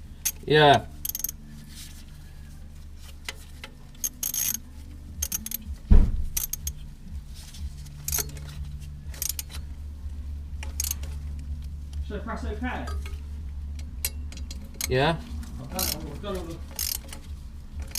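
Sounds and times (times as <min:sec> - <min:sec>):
metallic clinks and rattles: 0:00.0 - 0:02.0, 0:03.0 - 0:09.8, 0:10.5 - 0:12.0, 0:12.8 - 0:17.9
steady low hum: 0:00.0 - 0:17.9
heavy thud: 0:05.8 - 0:06.4.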